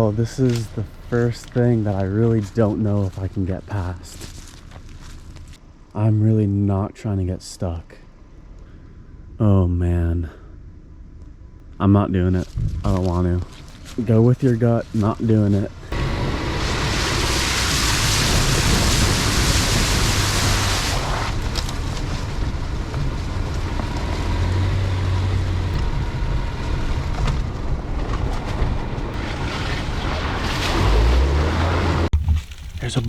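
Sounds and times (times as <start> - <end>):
tyre and road noise: 0.0 - 5.9, 10.6 - 33.0
truck engine rumble: 0.0 - 6.3, 7.3 - 33.0.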